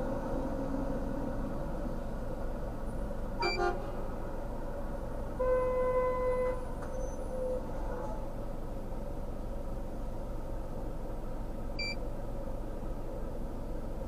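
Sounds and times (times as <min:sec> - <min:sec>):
low engine rumble: 0:00.0 - 0:14.0
vehicle horn honking: 0:03.4 - 0:03.9, 0:05.4 - 0:06.7.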